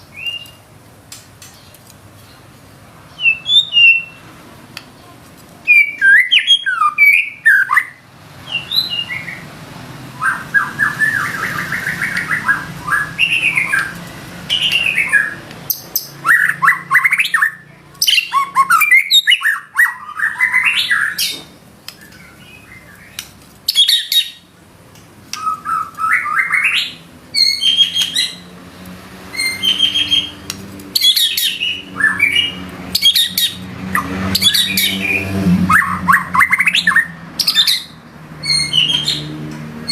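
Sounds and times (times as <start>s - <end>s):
songbird singing whistles and trills: 0.0s - 0.7s, 3.1s - 4.2s, 5.6s - 9.5s, 10.2s - 24.5s, 25.3s - 28.4s, 29.3s - 39.3s.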